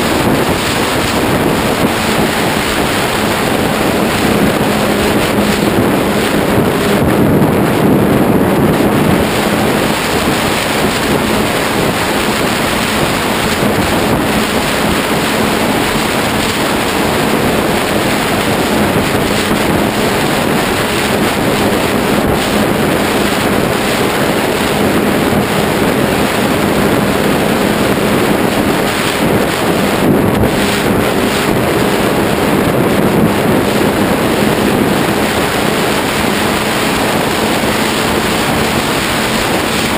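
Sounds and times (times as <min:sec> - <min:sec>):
electric motor and propeller hum: 0:00.0 - 0:39.9
wind on microphone: 0:00.0 - 0:39.9.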